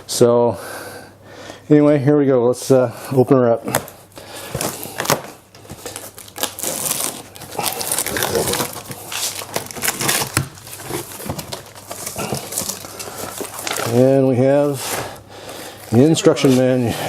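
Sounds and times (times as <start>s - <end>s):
packing material rustling: 3.7s - 17.0s.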